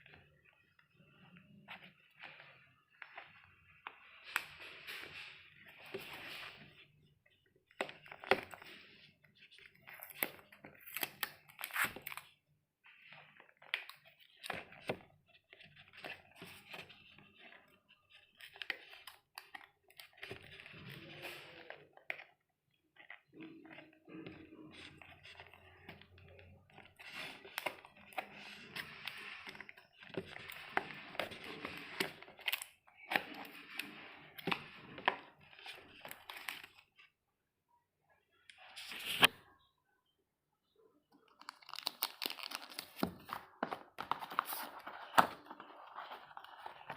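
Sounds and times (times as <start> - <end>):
packaging rustling and crinkling: 41.4 - 46.9.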